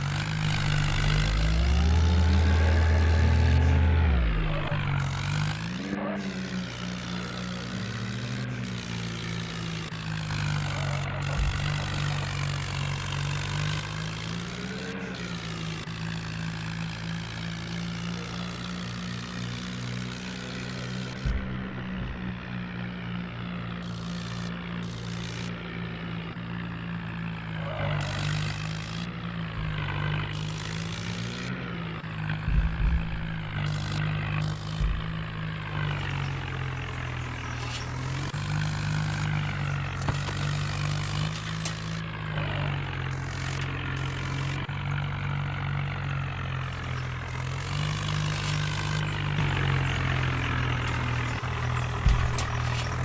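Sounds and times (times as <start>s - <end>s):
tractor engine revving: 0.0s - 53.0s
sharp knocks: 32.3s - 39.4s, 49.1s - 53.0s.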